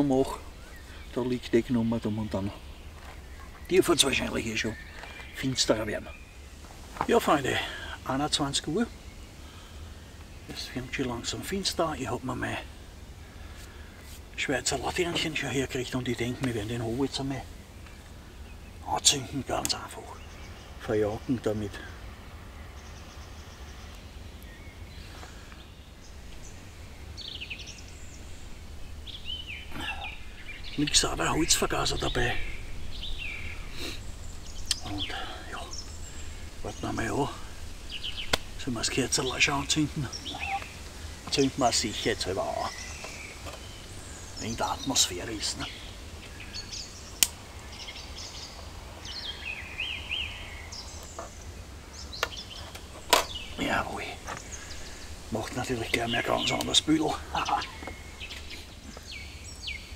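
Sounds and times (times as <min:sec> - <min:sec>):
songbird singing: 0:00.0 - 0:59.9
low background rumble: 0:07.6 - 0:59.5
low steady rumble: 0:25.8 - 0:41.3.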